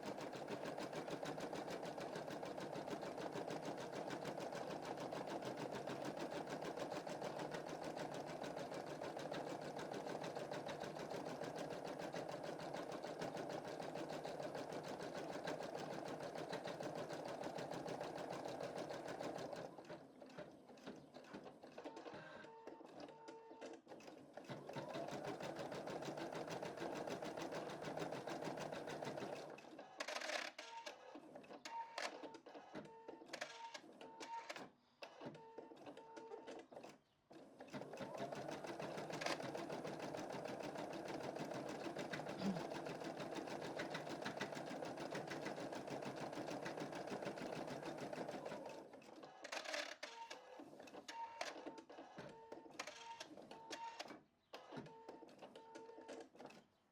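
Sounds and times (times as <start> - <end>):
embroidery machine stitching: 0.0 - 22.0, 24.0 - 29.6, 36.5 - 50.0.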